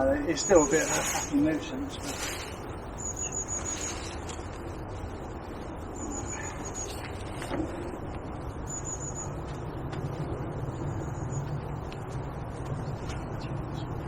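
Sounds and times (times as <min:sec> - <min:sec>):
outdoor background noise: 0:00.0 - 0:14.0
small bird trilling: 0:00.4 - 0:04.3.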